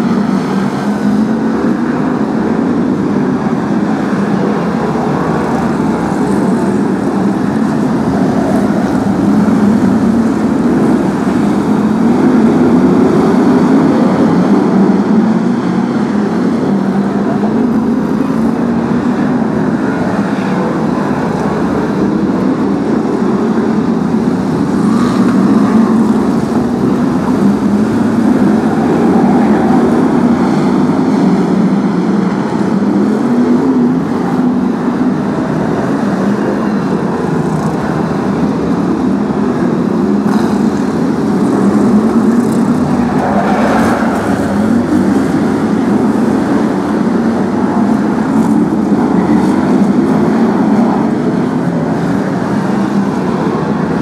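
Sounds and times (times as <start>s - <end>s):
racing car engines: 0.0s - 54.0s.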